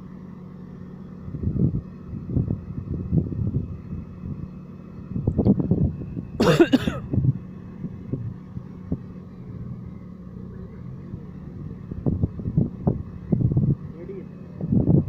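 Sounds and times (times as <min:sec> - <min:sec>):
car engine running: 0:00.0 - 0:15.0
person coughing: 0:06.4 - 0:07.0.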